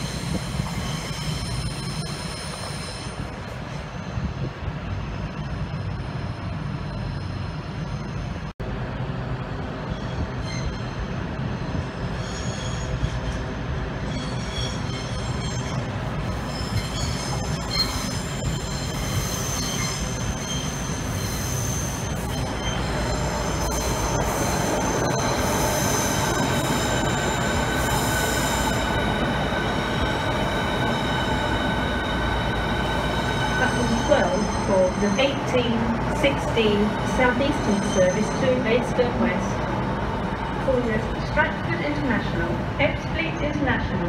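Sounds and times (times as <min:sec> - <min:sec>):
squealing train wheels: 0:00.0 - 0:04.3, 0:09.8 - 0:42.0
train rumble: 0:00.0 - 0:44.0.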